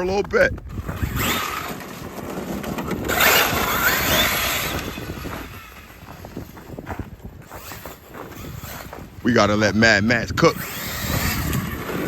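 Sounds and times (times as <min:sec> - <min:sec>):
tyres scrubbing over ground: 0:00.0 - 0:09.9
electric motor whining: 0:00.6 - 0:06.8, 0:07.4 - 0:12.0.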